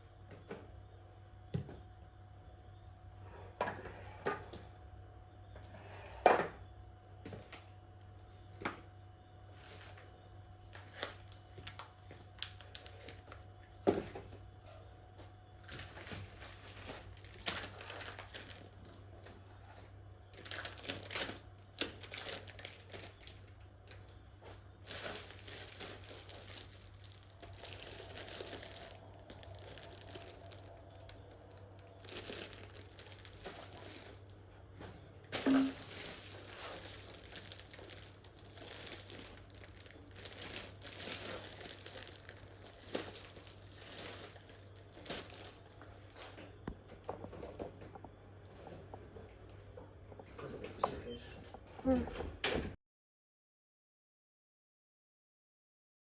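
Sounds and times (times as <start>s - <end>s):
faint steady hum: 0.0s - 52.6s
crinkling and rustling: 9.5s - 14.4s, 15.5s - 51.0s.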